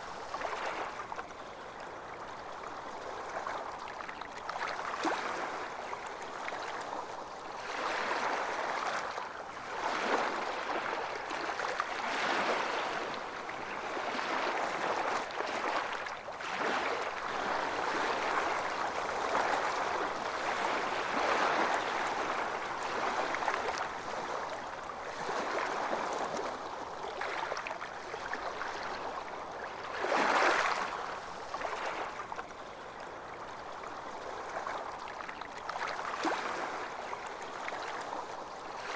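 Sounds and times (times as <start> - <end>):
small waves washing onto beach: 0.0 - 38.9.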